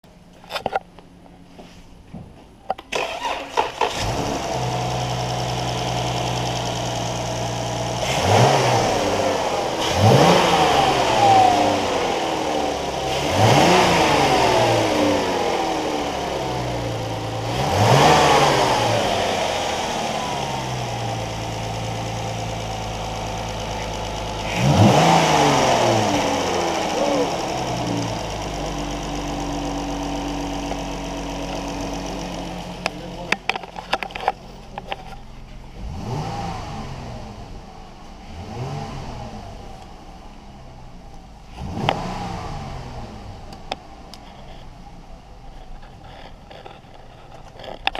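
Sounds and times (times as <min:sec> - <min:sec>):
car engine idling and revving: 0:00.0 - 0:47.9
engine starter clicks: 0:02.8 - 0:04.2.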